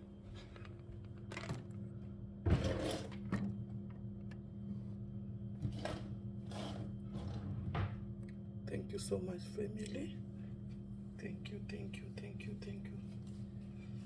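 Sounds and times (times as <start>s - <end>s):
steady low hum: 3.4s - 14.0s.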